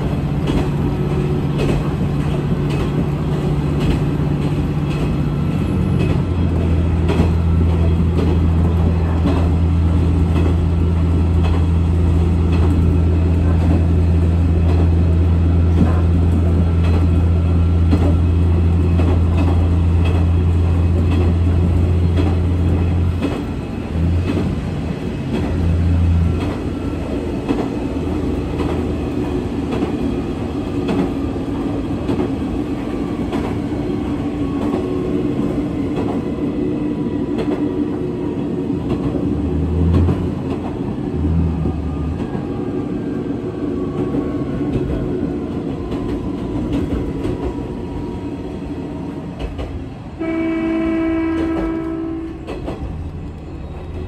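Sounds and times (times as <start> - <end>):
wheels clicking over rail joints: 0.0 - 26.8, 51.3 - 54.0
railcar engine drone: 0.0 - 54.0.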